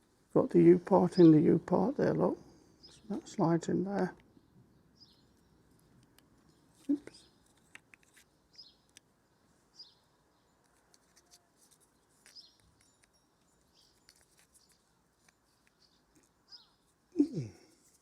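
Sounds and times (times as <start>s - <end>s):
faint bird chirps: 4.3s - 18.0s.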